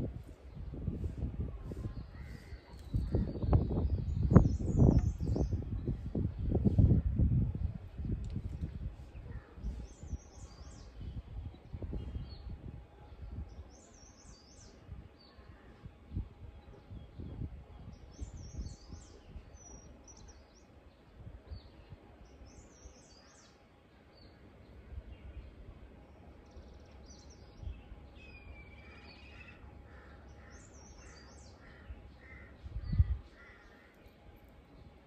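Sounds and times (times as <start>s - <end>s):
wild birds chirping: 8.9s - 35.0s.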